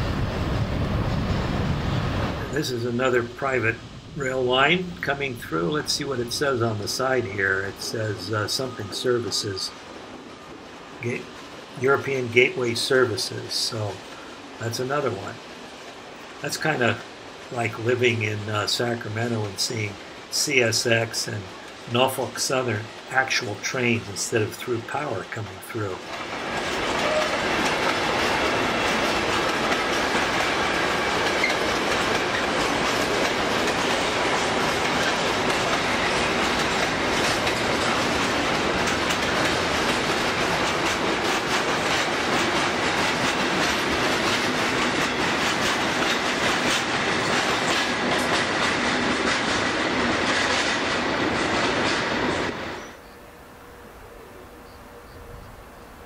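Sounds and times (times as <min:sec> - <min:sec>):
train wagons rolling past: 0:00.0 - 0:56.0
wheels clicking over rail joints: 0:24.6 - 0:52.6.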